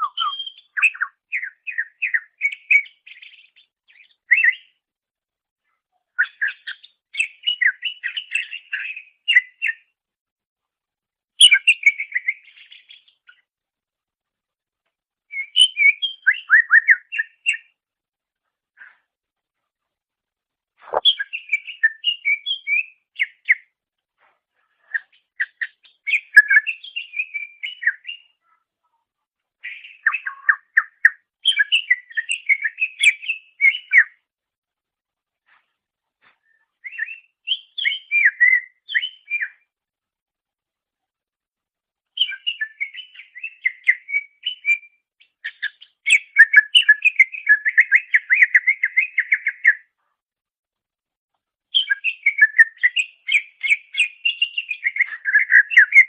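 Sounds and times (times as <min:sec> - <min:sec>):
bird singing whistled phrases: 0:00.0 - 0:04.7, 0:06.2 - 0:09.8, 0:11.4 - 0:13.2, 0:15.3 - 0:17.7, 0:20.9 - 0:23.7, 0:24.9 - 0:28.4, 0:29.6 - 0:34.2, 0:36.8 - 0:39.6, 0:42.2 - 0:49.9, 0:51.7 - 0:56.0.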